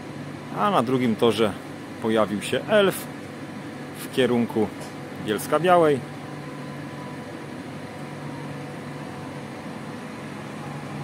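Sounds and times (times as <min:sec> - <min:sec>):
trains humming at idle: 0:05.9 - 0:11.0.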